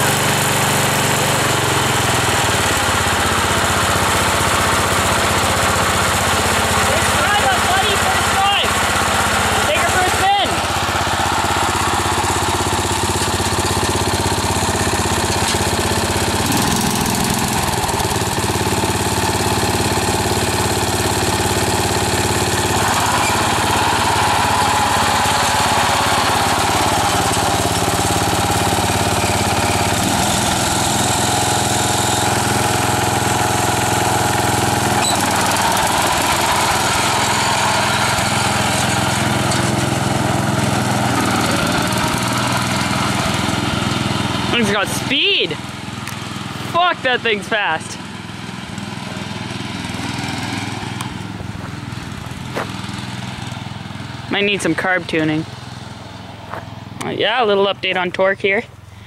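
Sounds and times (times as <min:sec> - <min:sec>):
small tractor engine running: 0:00.0 - 0:59.0.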